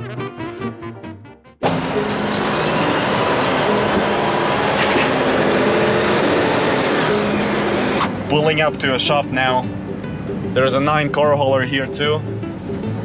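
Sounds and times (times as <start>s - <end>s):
brass swing music: 0.0s - 2.4s
truck engine and road noise: 1.6s - 13.0s.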